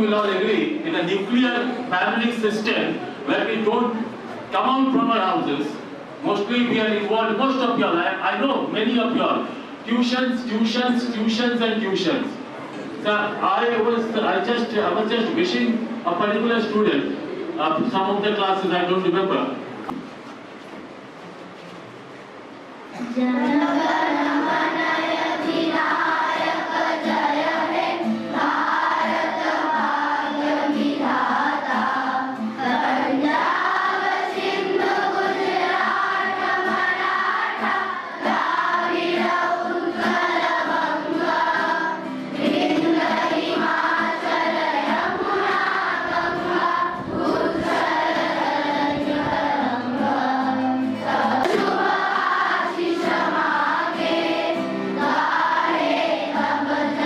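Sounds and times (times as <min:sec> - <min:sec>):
children singing in chorus: 0:23.2 - 0:57.0.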